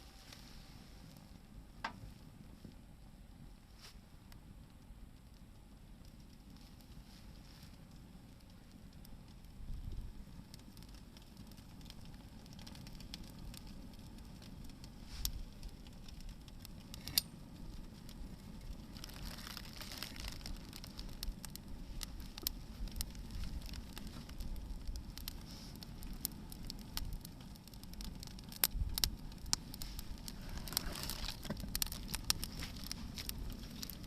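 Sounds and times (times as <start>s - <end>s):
fire flame rumble: 0.0s - 34.0s
firewood crackling: 0.0s - 34.0s
sharp pops of burning wood: 4.4s - 34.0s
brief hiss from fire: 25.3s - 25.9s.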